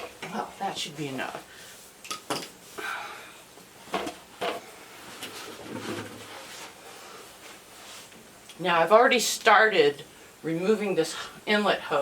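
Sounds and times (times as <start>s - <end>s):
soft rustling: 4.9s - 8.3s.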